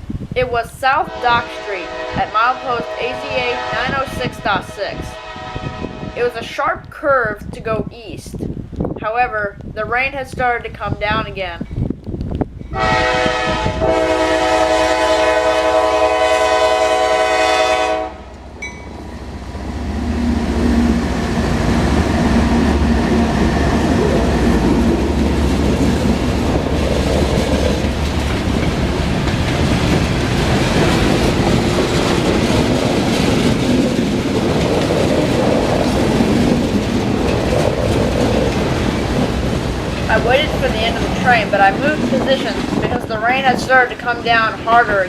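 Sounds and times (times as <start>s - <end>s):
train horn: 1.0s - 6.5s, 12.7s - 18.4s
freight cars rolling over rails: 18.8s - 45.0s
diesel engines running under load: 37.1s - 44.9s.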